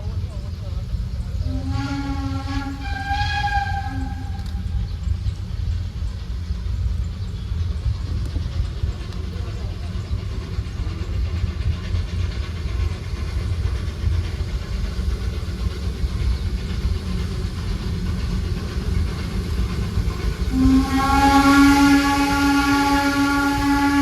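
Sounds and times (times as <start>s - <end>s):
steam train rumble: 0.0s - 24.0s
steam locomotive whistle: 1.4s - 4.9s, 20.5s - 24.0s.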